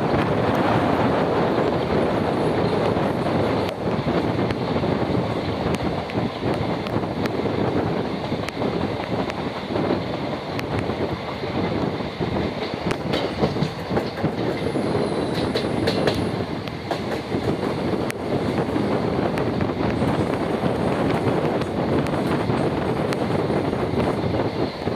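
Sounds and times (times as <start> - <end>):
train coaches rumbling and rattling: 0.0 - 24.9
wheels clicking over rail joints: 12.4 - 18.7.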